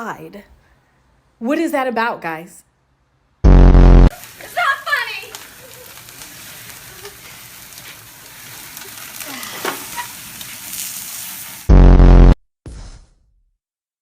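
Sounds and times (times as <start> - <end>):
loud buzzing tone: 3.4 - 4.1, 11.7 - 12.4
food sizzling in a pan: 4.0 - 11.8
stirring clicks: 4.2 - 10.8.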